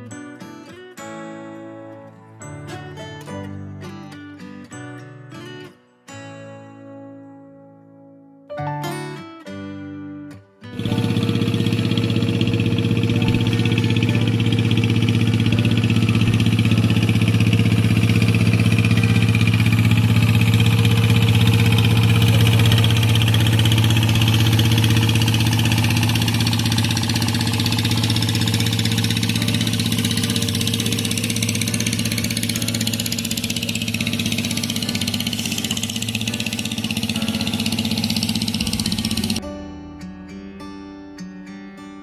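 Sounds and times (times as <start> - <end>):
boat engine running: 10.8 - 39.4.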